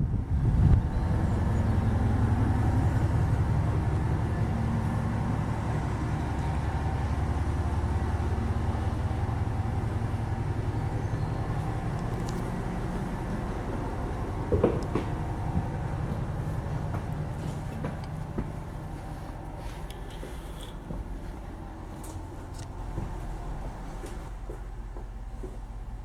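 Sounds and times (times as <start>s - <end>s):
train running: 0.0s - 26.0s.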